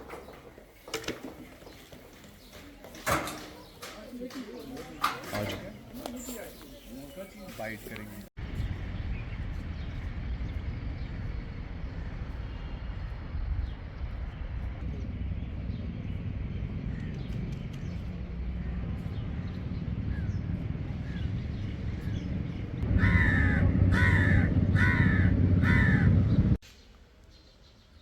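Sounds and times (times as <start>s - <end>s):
steady low rumble: 8.4s - 26.6s
crow cawing: 22.8s - 26.3s.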